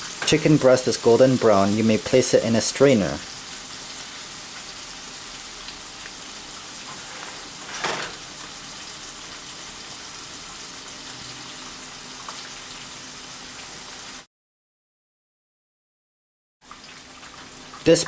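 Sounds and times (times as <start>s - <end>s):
chicken frying in hot oil: 0.0s - 14.3s, 16.6s - 18.0s.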